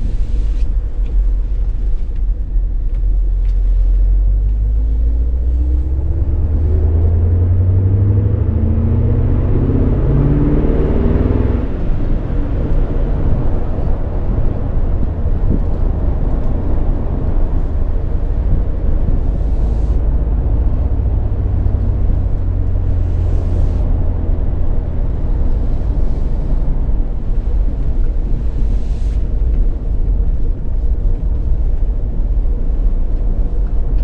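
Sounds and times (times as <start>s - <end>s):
car engine rumble: 0.0s - 34.0s
road noise: 0.0s - 34.0s.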